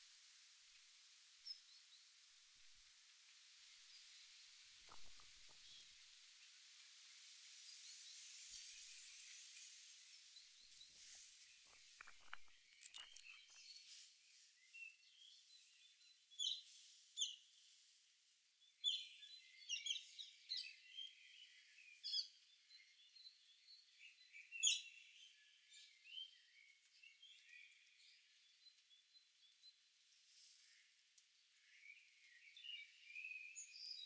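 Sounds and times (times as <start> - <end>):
birds chirping: 10.3 - 16.6.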